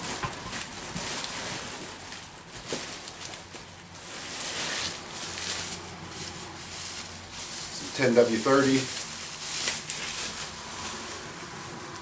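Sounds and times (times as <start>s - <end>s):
packaging rustling: 0.0s - 12.0s.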